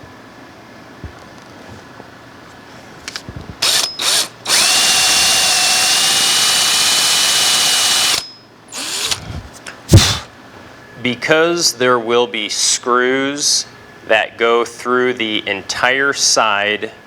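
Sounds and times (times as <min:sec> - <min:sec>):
power drill boring into wood: 0:03.6 - 0:10.3.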